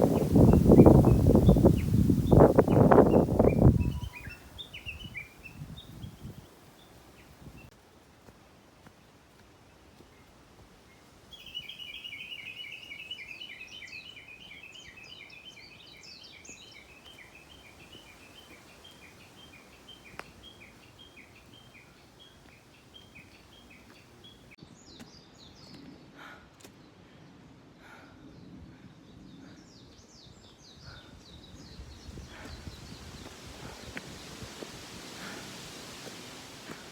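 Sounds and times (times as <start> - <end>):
bird chirping: 0.0 - 7.7, 11.3 - 25.8.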